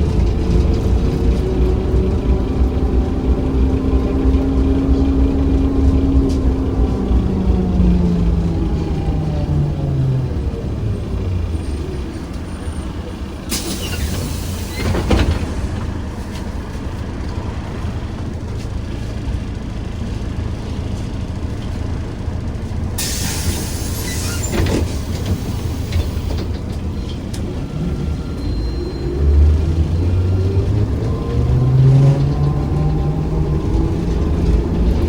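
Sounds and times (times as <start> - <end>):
trolleybus interior rumble: 0.0 - 35.0.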